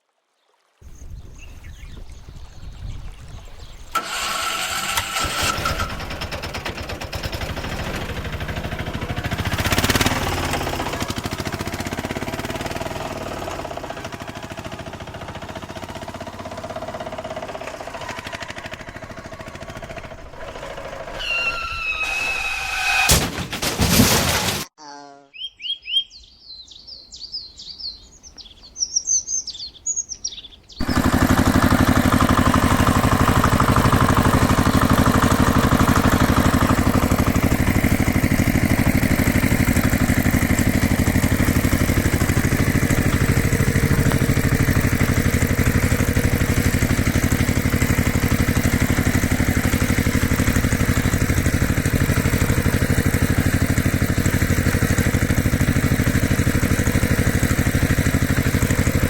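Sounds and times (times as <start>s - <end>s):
birds chirping: 0.8s - 4.3s, 24.8s - 31.8s
vehicle engine running: 3.9s - 21.3s, 30.8s - 59.0s.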